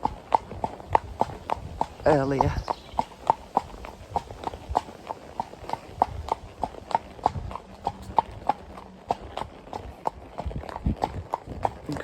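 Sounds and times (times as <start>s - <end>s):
horse hooves clip-clopping on road: 0.0s - 12.0s.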